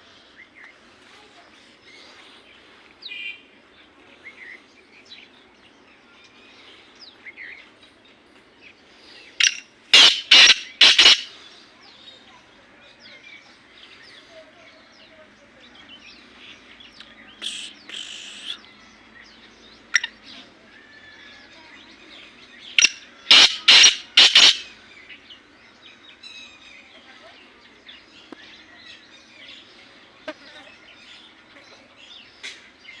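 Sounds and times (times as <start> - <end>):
small birds chirping: 0.0 - 33.0
francolin calling harshly: 9.4 - 11.4, 17.4 - 18.6, 22.7 - 24.8.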